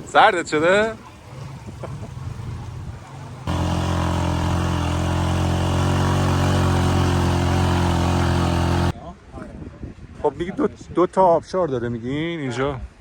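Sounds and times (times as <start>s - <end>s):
engine running steadily: 3.4s - 8.9s.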